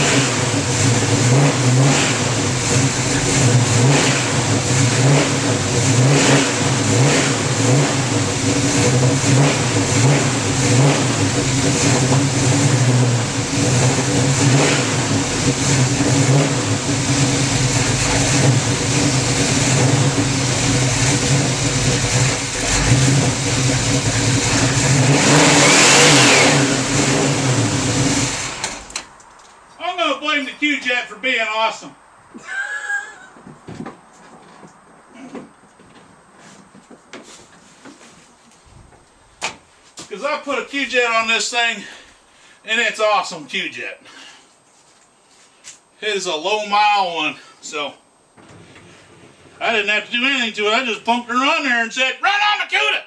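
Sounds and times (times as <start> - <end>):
car engine running steadily: 0.0 - 29.2.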